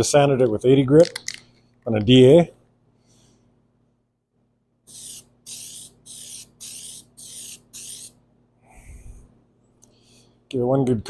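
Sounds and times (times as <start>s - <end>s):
aerosol can spraying: 4.9s - 8.2s.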